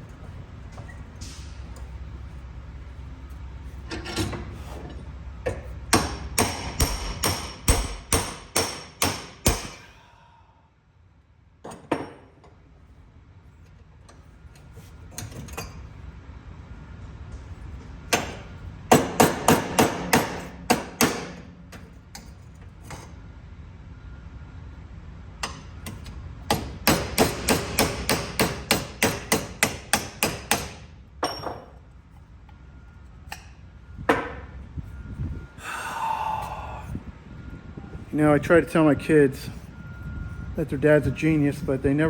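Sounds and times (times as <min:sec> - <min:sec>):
hammer blows on metal: 0:06.0 - 0:10.1.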